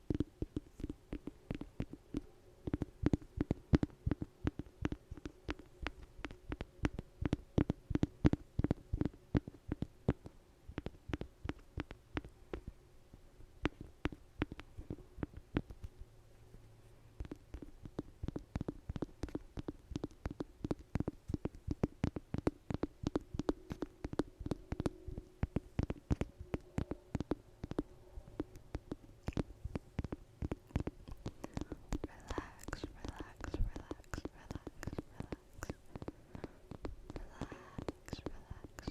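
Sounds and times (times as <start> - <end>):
low steady hum: 0.0 - 38.9
rapid irregular tapping: 0.0 - 38.9.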